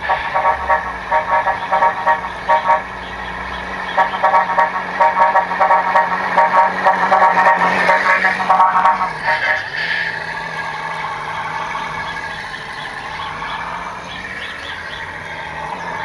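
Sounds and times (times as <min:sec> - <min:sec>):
electronic engine hum: 0:00.0 - 0:16.0.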